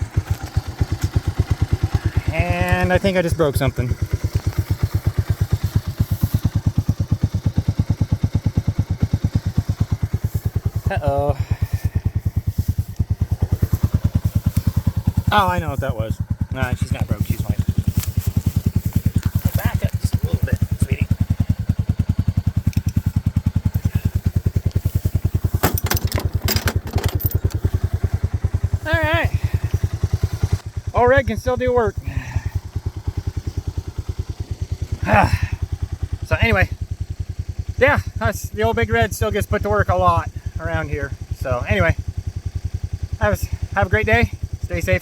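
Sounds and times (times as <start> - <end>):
engine running slowly: 0.0 - 45.0
metallic clanks: 25.5 - 27.6.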